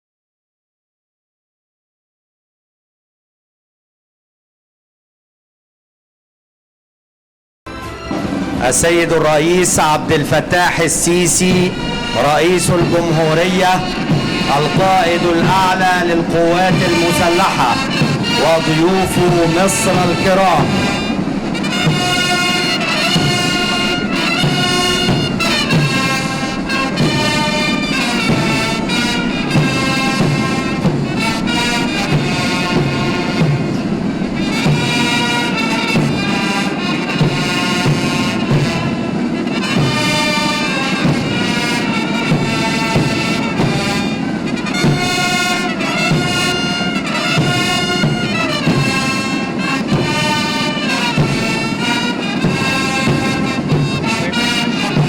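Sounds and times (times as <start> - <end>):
military brass band playing: 7.7 - 55.0.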